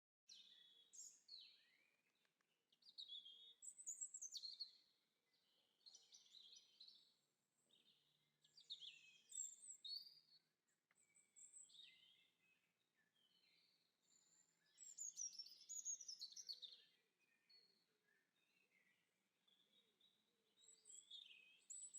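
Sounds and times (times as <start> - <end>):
songbirds chirping and warbling: 0.3 - 21.9.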